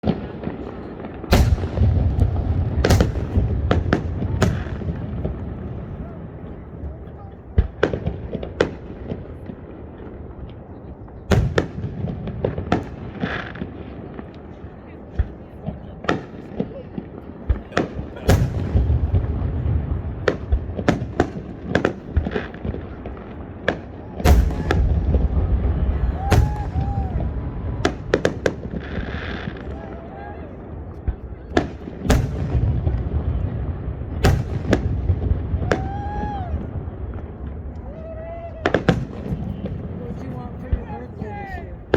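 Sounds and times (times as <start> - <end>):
fireworks bangs and pops: 0.0 - 30.0, 30.6 - 41.9
low rolling rumble: 24.3 - 28.8.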